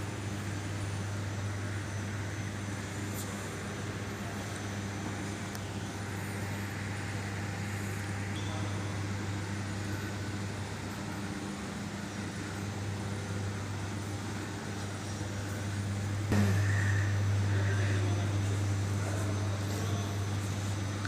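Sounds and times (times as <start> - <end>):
low hum: 13.6 - 19.6.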